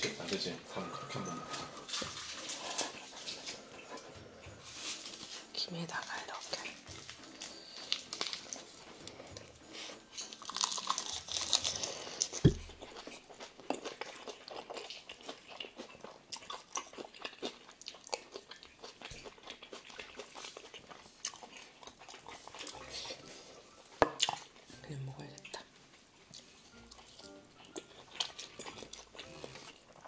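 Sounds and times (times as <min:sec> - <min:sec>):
crunching and chewing food: 0:00.0 - 0:30.0
low thump: 0:12.4 - 0:12.7.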